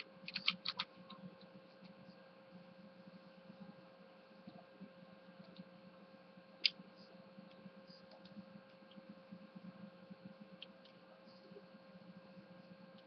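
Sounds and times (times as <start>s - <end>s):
small clicks and ticks: 0.0s - 2.0s, 7.5s - 11.0s
electrical hum: 0.0s - 13.0s.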